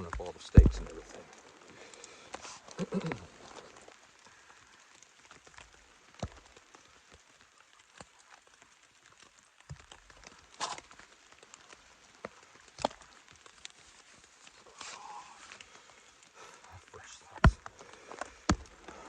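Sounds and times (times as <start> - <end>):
water drips tapping on fabric: 0.0 - 14.8, 17.4 - 19.0
faint hiss: 13.7 - 19.0.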